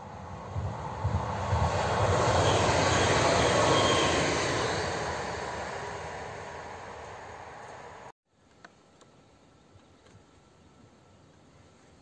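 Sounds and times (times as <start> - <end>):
passenger train passing: 0.0 - 8.1.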